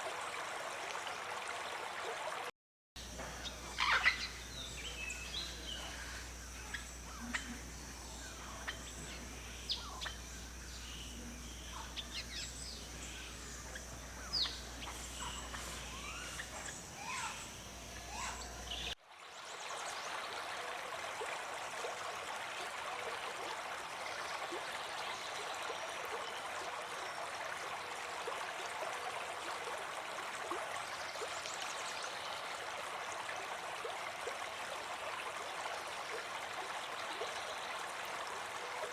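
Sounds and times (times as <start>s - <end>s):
stream flowing: 0.0s - 38.9s
low steady hum: 3.0s - 19.0s
birds chirping and whistling: 3.3s - 19.0s.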